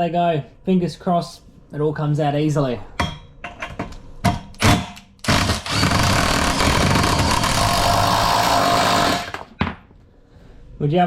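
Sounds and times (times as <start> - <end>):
power driver running: 5.2 - 9.5.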